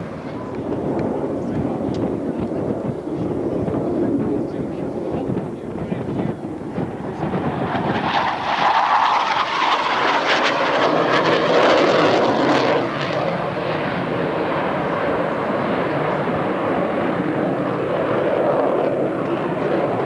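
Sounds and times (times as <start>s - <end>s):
jet aircraft flying past: 0.0s - 20.0s.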